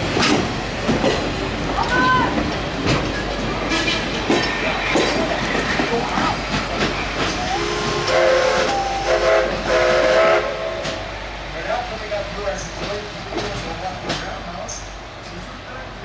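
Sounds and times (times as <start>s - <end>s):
train cars clattering over rails: 0.0s - 16.0s
train whistle blasts: 7.4s - 11.0s.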